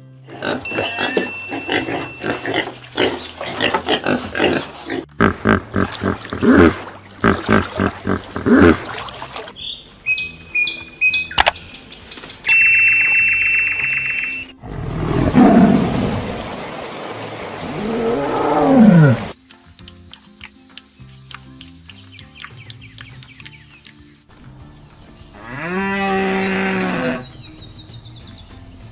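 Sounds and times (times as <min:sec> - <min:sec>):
faint background music: 0:00.0 - 0:16.0, 0:17.6 - 0:28.9
pigs grunting and squealing: 0:00.2 - 0:09.5, 0:17.6 - 0:19.4, 0:25.4 - 0:27.4
high ringing tones: 0:00.7 - 0:02.6, 0:12.5 - 0:14.6
sharp click: 0:11.3 - 0:11.6.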